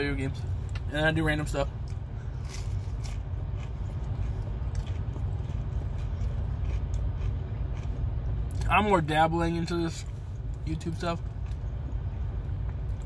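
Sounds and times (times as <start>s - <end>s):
steady low rumble: 0.0s - 13.0s
man biting and chewing: 1.8s - 8.7s.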